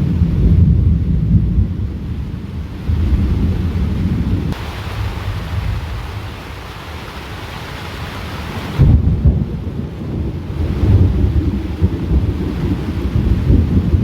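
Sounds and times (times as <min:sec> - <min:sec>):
steady rain: 0:00.0 - 0:14.0
thunder rumbling: 0:00.0 - 0:14.0.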